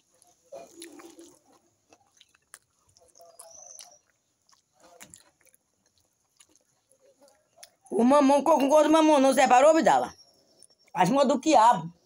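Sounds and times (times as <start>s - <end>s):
faint chewing: 0.0s - 8.0s, 10.1s - 11.1s.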